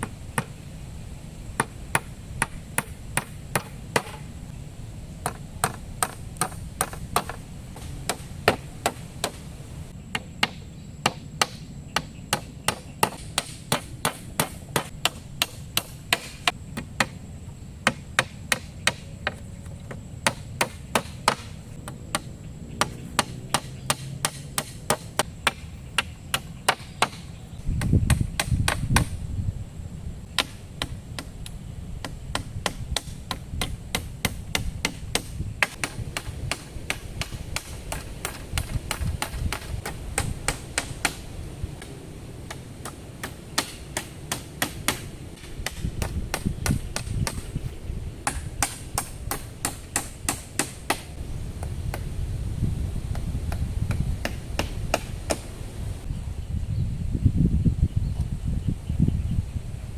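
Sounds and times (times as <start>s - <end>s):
chopping strikes on wood: 1.6s - 4.2s, 5.2s - 9.4s, 10.1s - 17.2s, 20.2s - 27.2s, 30.4s - 31.3s, 32.0s - 41.2s, 42.5s - 47.4s, 48.2s - 51.1s, 53.1s - 55.4s.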